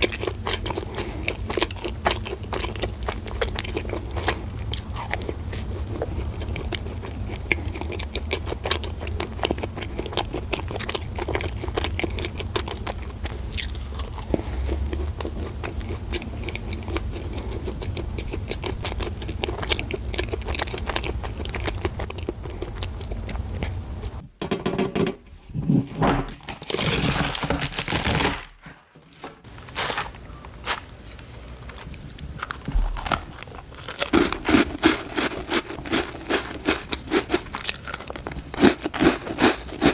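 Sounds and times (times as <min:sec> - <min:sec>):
biting and chewing crunchy food: 0:00.0 - 0:24.2, 0:26.4 - 0:28.7, 0:29.4 - 0:39.9
low hum: 0:02.9 - 0:24.4
cookie packet rustling: 0:26.2 - 0:39.9.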